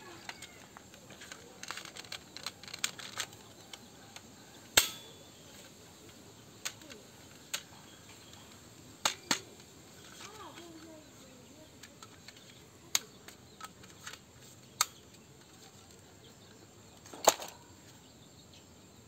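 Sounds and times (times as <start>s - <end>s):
sharp clicks and snaps: 0.0s - 11.0s, 11.8s - 16.0s.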